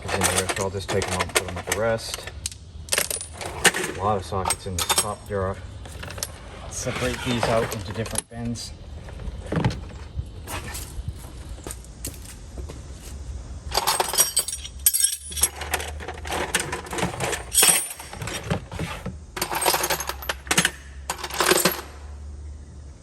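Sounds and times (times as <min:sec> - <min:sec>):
metal sockets clinking: 0:00.0 - 0:06.4, 0:13.7 - 0:22.0.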